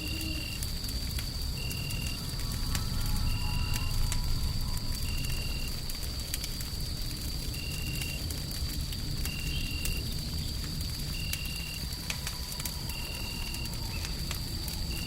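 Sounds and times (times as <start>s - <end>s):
low fire rumble: 0.0s - 15.0s
wood fire crackling: 0.0s - 15.0s.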